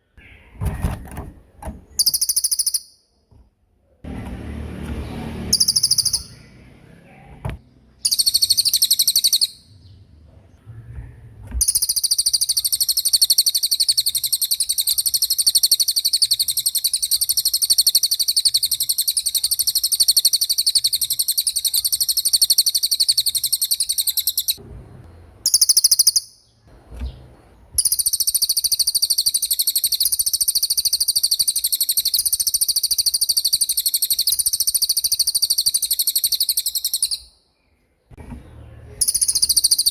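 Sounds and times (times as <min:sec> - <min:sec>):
songbird high-pitched rolling trill: 0:02.0 - 0:03.1, 0:05.5 - 0:06.7, 0:08.0 - 0:09.8, 0:11.6 - 0:24.6, 0:25.4 - 0:26.5, 0:27.8 - 0:37.4, 0:39.0 - 0:39.9.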